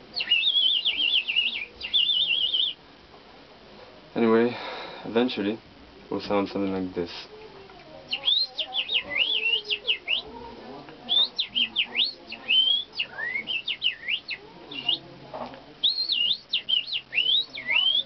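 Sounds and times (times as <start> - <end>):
person whistling like birdsong: 11.1 - 15.0.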